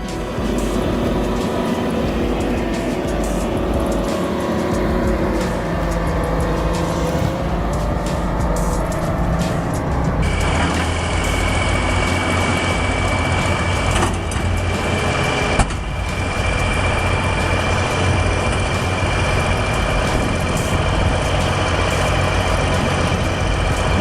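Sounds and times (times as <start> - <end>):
heavy machine engine humming: 0.0 - 24.0
high-pitched whine: 0.0 - 24.0.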